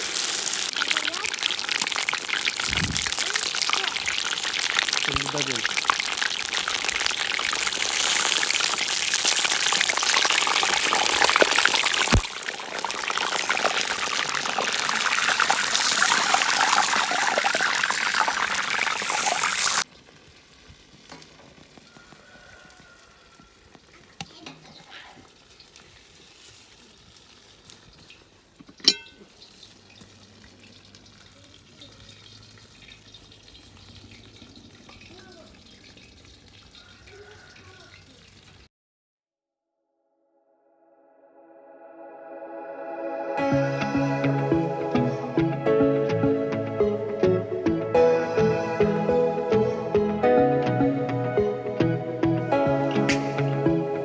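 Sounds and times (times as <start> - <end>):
deep-frying in hot oil sizzling: 0.0 - 38.7.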